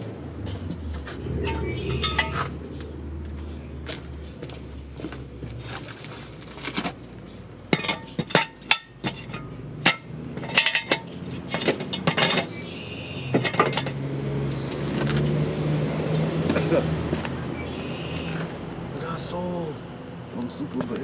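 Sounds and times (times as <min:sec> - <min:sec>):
metal jack stands clanking: 0:00.0 - 0:02.6, 0:07.7 - 0:14.0.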